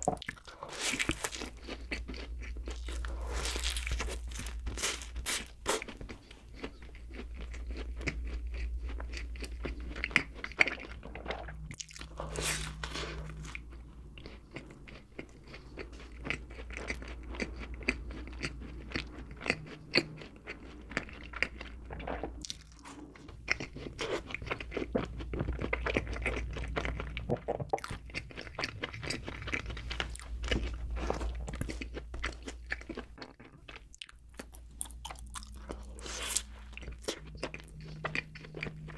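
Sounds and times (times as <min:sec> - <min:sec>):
biting and chewing crunches: 0:00.0 - 0:38.9
low hum: 0:06.7 - 0:33.2, 0:34.4 - 0:38.9.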